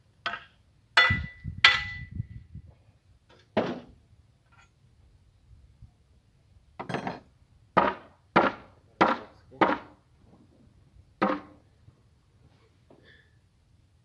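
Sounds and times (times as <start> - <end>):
hammer strikes: 0.2 - 2.1, 7.8 - 10.0, 11.2 - 11.6.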